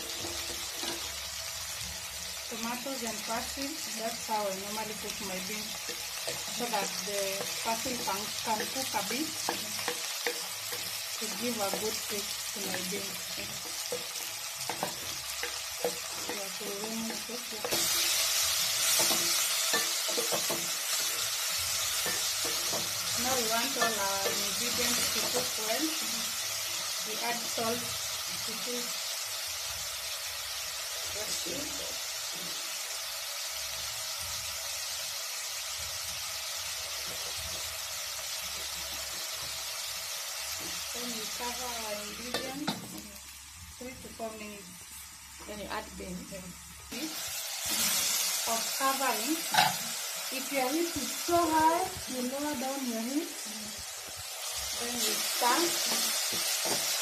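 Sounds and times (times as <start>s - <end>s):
vegetables sizzling in hot oil: 0.0s - 57.0s
wooden spoon tapping and scraping: 5.8s - 18.2s, 18.9s - 25.6s.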